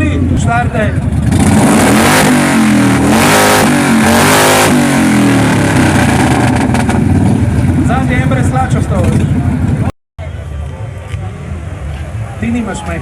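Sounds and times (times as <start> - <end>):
car engine revving hard: 1.1 - 7.3.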